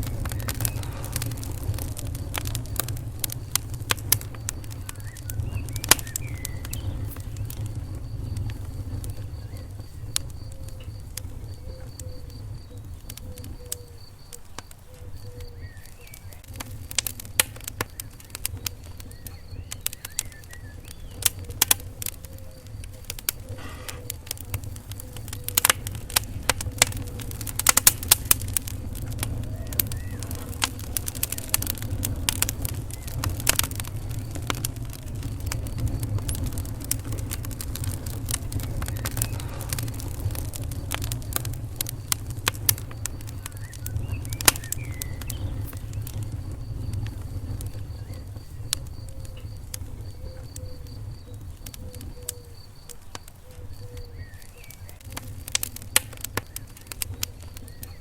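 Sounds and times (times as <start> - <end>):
faint wavering whistles: 0.0 - 58.0
wood fire crackling: 0.0 - 58.0.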